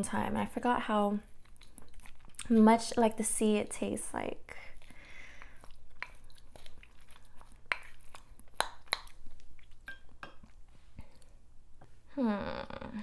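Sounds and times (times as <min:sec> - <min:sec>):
person chewing: 0:01.3 - 0:02.6, 0:04.7 - 0:11.9
wet mouth clicks and smacks: 0:05.4 - 0:09.9.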